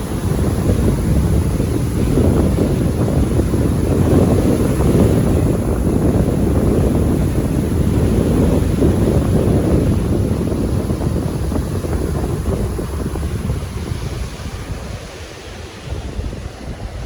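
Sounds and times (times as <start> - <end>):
sea surf: 0.0 - 17.0
wind rumbling on microphone: 0.0 - 17.0.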